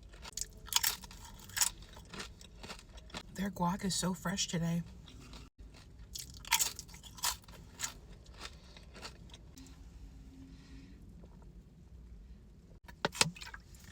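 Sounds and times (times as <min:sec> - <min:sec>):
person chewing crunchy food: 0:00.0 - 0:03.4, 0:04.9 - 0:09.7.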